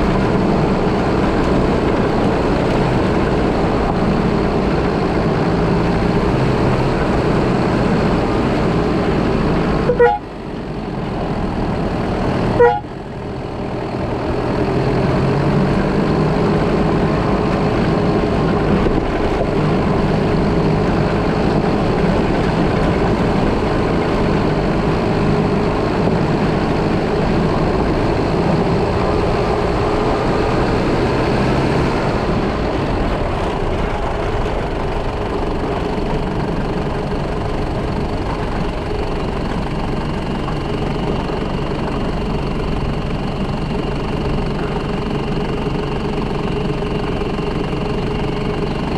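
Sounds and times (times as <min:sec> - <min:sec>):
car engine and road noise: 0:00.0 - 0:48.9
car horn toots: 0:09.8 - 0:10.4, 0:12.5 - 0:13.0.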